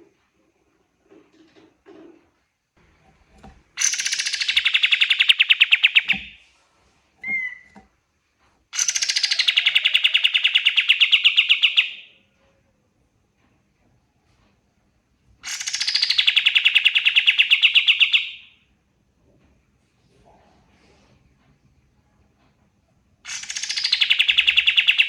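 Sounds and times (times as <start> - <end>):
bird singing rapid trills: 3.8 - 6.3.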